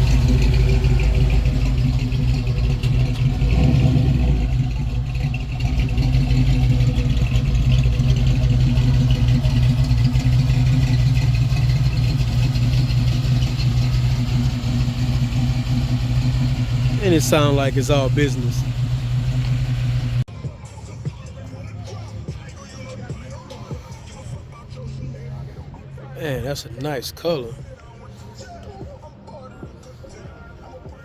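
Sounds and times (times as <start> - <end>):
car exhaust rumbling: 0.0 - 20.3.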